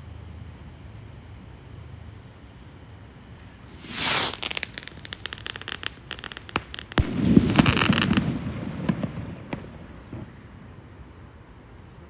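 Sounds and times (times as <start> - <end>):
firework bang: 3.7 - 10.4
fireworks crackling: 3.7 - 10.4.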